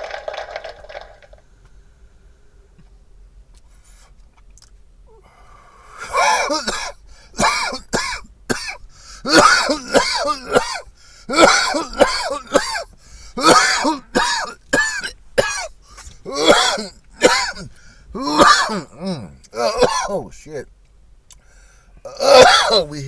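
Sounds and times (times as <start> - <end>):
person coughing: 6.0 - 20.2, 22.1 - 23.0.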